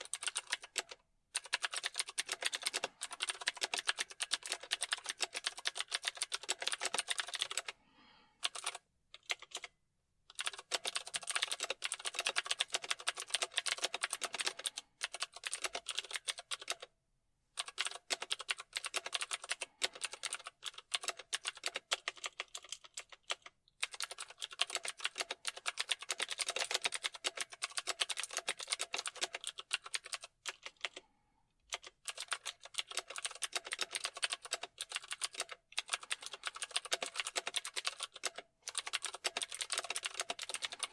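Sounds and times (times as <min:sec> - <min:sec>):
fast keyboard typing: 0:00.0 - 0:07.8, 0:08.4 - 0:09.7, 0:10.3 - 0:16.9, 0:17.6 - 0:31.1, 0:31.7 - 0:40.9.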